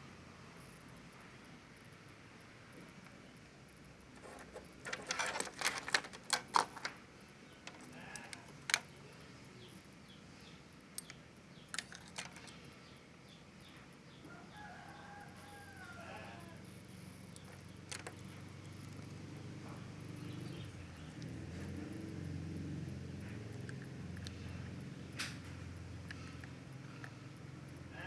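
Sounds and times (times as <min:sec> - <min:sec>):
sharp clicks and knocks: 0:04.1 - 0:07.0, 0:07.6 - 0:09.0, 0:11.0 - 0:12.6, 0:17.3 - 0:21.7
rooster crowing faintly: 0:14.1 - 0:17.2.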